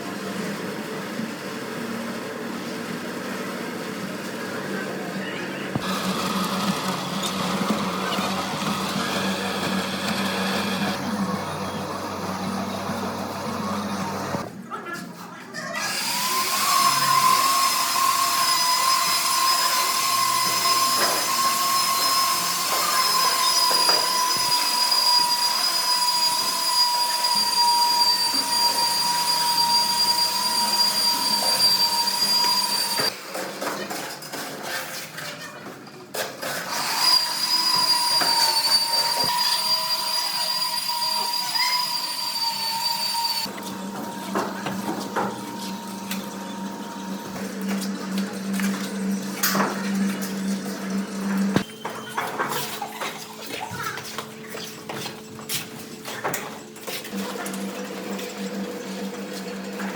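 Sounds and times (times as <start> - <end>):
power tool whining: 5.7 - 14.4, 15.8 - 33.1, 36.6 - 51.7.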